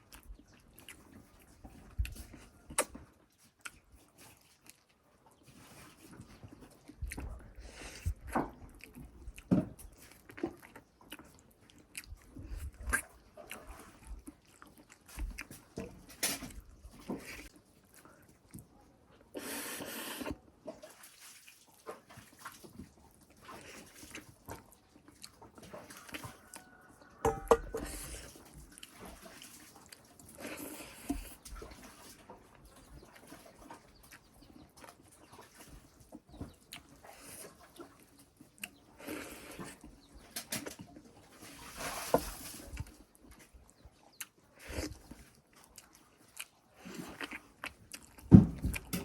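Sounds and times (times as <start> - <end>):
person chewing: 0.0 - 20.4, 21.8 - 35.6, 36.5 - 40.1, 42.7 - 49.0
slurping soup: 19.3 - 20.5, 25.2 - 32.1, 36.7 - 40.1, 43.7 - 48.1.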